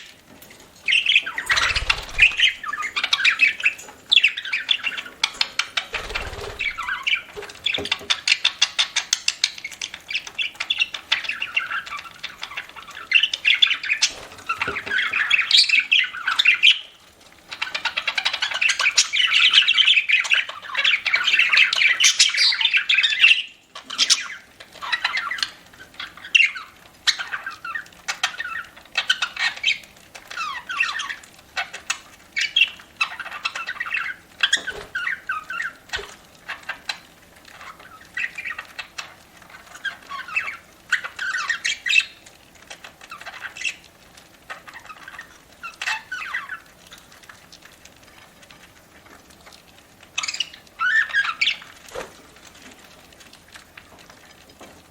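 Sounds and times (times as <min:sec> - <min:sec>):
budgerigars chattering and squawking: 0:00.9 - 0:16.9, 0:17.5 - 0:42.2.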